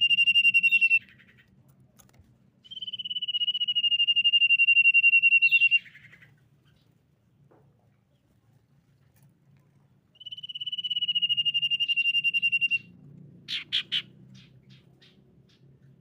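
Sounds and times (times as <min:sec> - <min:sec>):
bird trilled whistle: 0:00.0 - 0:01.1, 0:02.6 - 0:06.2, 0:10.2 - 0:12.9
faint ticking bird notes: 0:00.0 - 0:01.6, 0:10.1 - 0:16.0
sharp loud bird notes: 0:10.2 - 0:12.9, 0:13.5 - 0:15.6.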